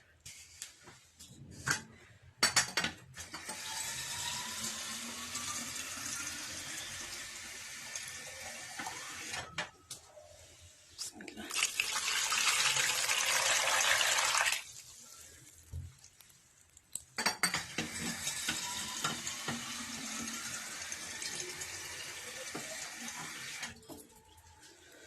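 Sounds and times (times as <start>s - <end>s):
water pouring into container: 11.2s - 17.0s.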